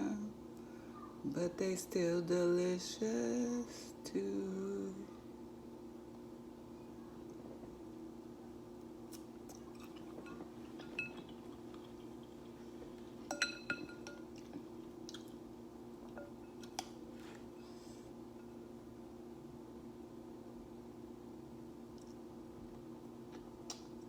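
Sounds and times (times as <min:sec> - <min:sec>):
steady low hum: 0:00.0 - 0:24.0
person chewing: 0:09.1 - 0:13.2
utensil clinking against bowl: 0:09.8 - 0:12.4, 0:13.2 - 0:14.6.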